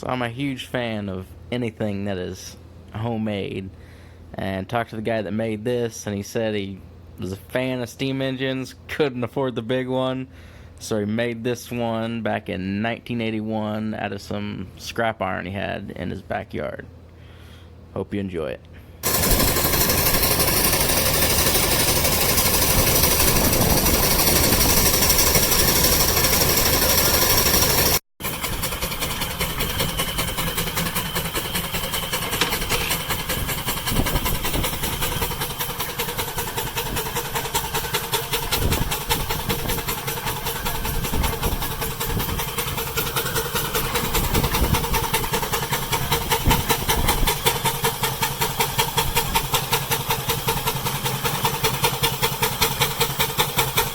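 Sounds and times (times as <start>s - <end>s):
rhythmic machinery beat: 19.0s - 53.9s
steam engine hissing: 19.0s - 53.9s.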